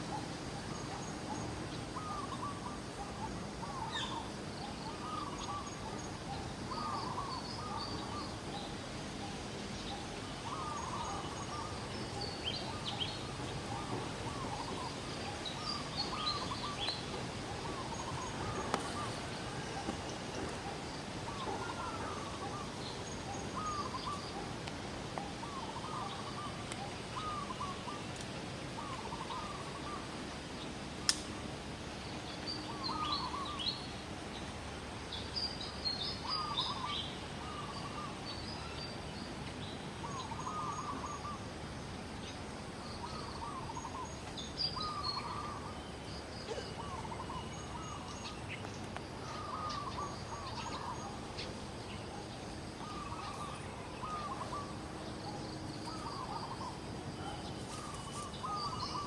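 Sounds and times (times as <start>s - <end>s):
outdoor background noise: 0.0s - 59.0s.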